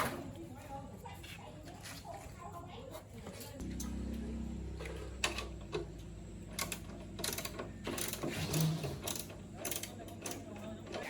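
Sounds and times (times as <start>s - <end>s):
hand tools clicking on metal: 6.6s - 10.4s.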